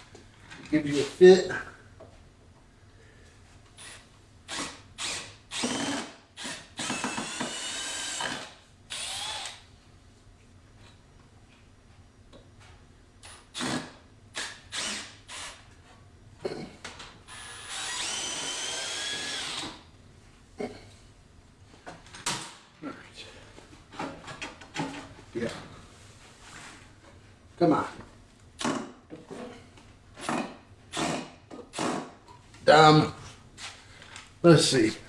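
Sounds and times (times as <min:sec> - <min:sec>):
cordless drill whining: 0:03.8 - 0:09.6, 0:13.6 - 0:15.6, 0:17.3 - 0:19.8.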